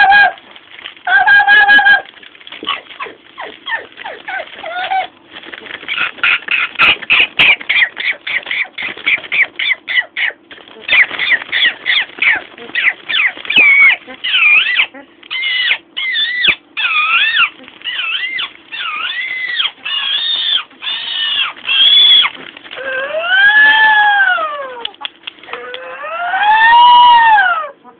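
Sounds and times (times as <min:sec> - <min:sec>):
parrot squawking: 0:05.8 - 0:27.9
parrot whistled calls: 0:05.9 - 0:20.7.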